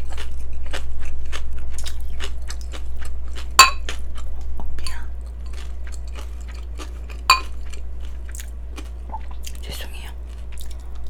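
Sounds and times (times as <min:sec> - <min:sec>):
crunchy chewing: 0:00.0 - 0:11.0
low hum: 0:00.0 - 0:11.0
chopsticks clinking against bowl: 0:07.3 - 0:07.7.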